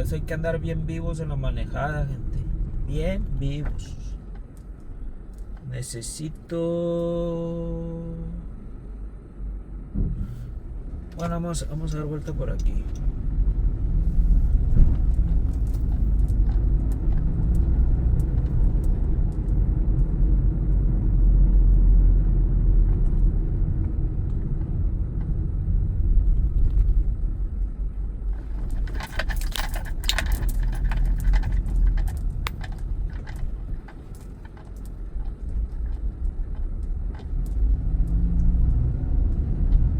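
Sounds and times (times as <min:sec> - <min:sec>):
car engine and road rumble: 0:00.0 - 0:39.9
light clicking and rattling: 0:28.3 - 0:38.2.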